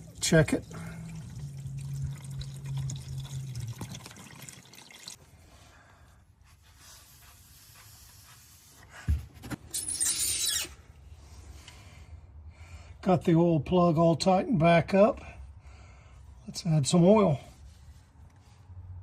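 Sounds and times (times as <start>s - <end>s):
oil trickling into drain pan: 0.0s - 5.2s.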